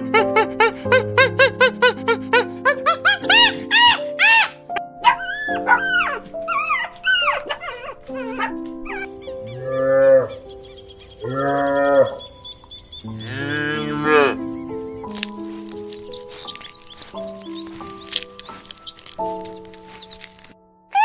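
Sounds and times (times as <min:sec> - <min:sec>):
background music: 0:00.0 - 0:21.0
high-pitched animal calls: 0:03.0 - 0:21.0
cow mooing: 0:09.4 - 0:10.5, 0:11.2 - 0:14.6.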